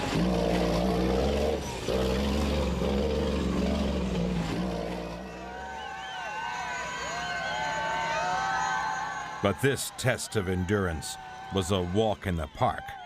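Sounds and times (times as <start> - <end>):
truck diesel engine running hard: 0.0 - 5.6.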